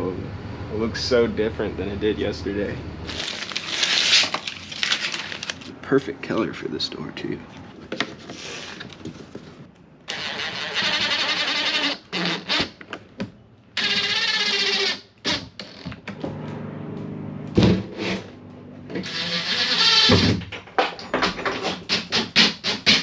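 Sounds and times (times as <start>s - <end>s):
power tool motor running: 10.1s - 12.7s, 13.8s - 18.3s, 18.9s - 20.2s.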